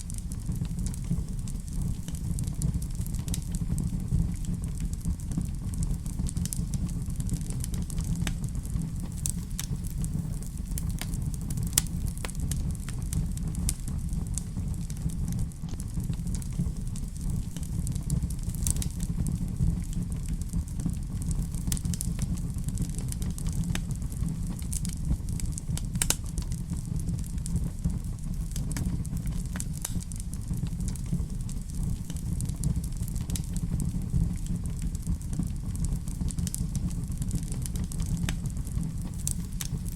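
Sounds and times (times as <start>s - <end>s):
steady low rumble: 0.0s - 39.9s
wood fire crackling: 0.0s - 39.9s.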